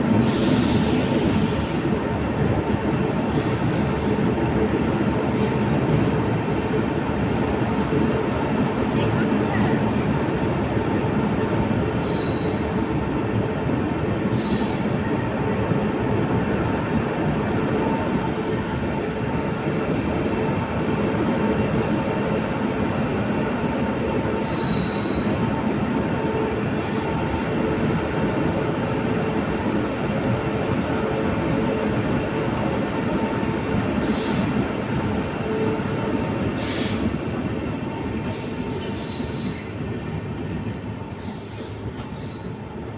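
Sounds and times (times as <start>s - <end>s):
train rumbling along track: 0.0s - 42.9s
high-pitched train squeals: 3.3s - 4.4s, 12.0s - 13.2s, 14.3s - 15.3s, 24.4s - 25.6s, 26.8s - 28.1s, 34.0s - 34.6s, 36.6s - 37.2s, 38.0s - 39.8s, 41.1s - 42.6s.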